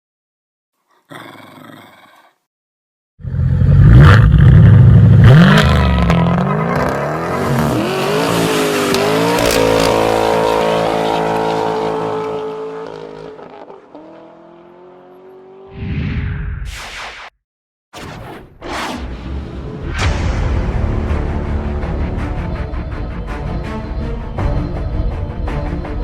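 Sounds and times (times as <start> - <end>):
car engine accelerating: 3.5 - 15.7
short whoosh: 15.7 - 17.4, 18.0 - 21.2.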